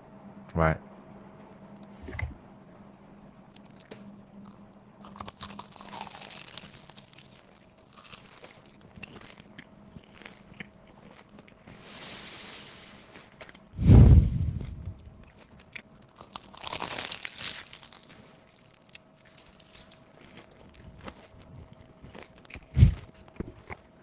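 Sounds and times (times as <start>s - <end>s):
person chewing crunchy food: 3.5s - 24.0s.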